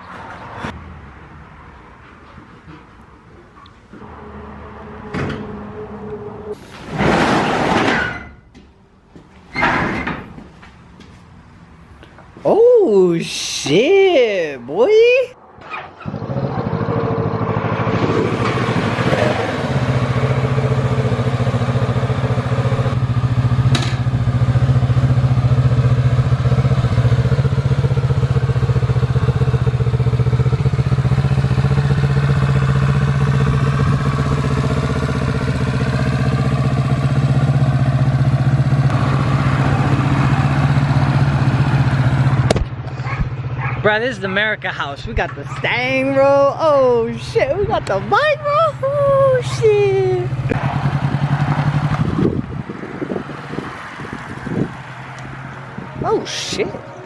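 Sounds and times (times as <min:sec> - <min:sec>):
motorcycle engine idling: 0:19.8 - 0:43.8.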